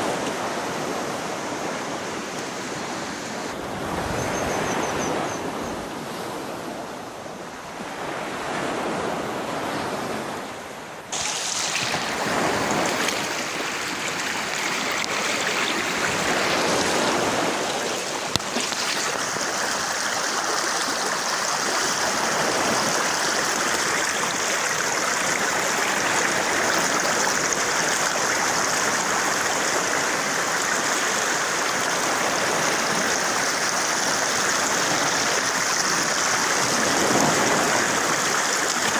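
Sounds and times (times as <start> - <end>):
flowing water rushing: 11.1 - 38.9.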